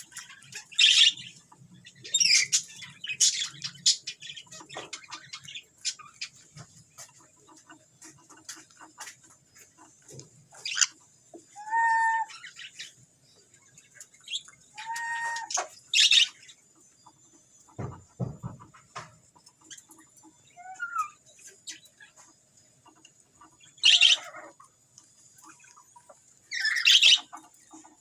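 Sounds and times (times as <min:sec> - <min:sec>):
parrots chirping and chattering: 0:00.0 - 0:28.0
parrot screeches: 0:11.6 - 0:12.3, 0:14.8 - 0:16.2.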